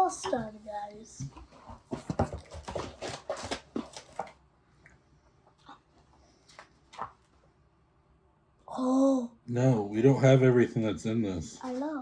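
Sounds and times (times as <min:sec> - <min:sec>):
packaging rustling and crinkling: 0:01.9 - 0:04.4.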